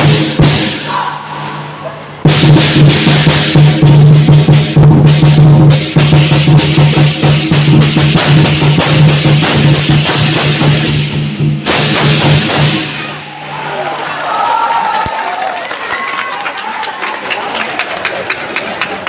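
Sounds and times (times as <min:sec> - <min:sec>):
large drum beaten rapidly: 0:00.0 - 0:00.8, 0:02.2 - 0:13.2
cymbals clashing: 0:00.0 - 0:13.6.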